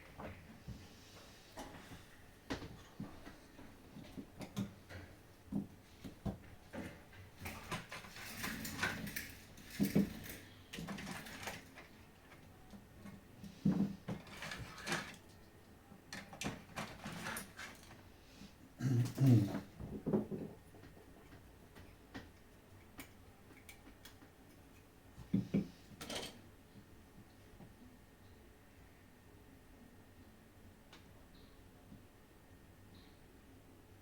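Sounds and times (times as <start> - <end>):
plastic parts clicking and scraping: 6.8 - 12.5, 13.6 - 15.4, 16.1 - 18.0.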